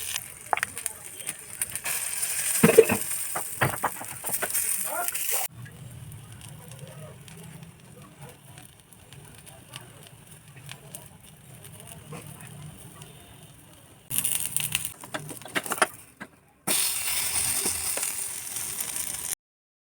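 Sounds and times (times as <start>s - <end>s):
food sizzling in a hot pan: 0.0s - 5.5s, 14.1s - 15.2s, 16.7s - 19.4s.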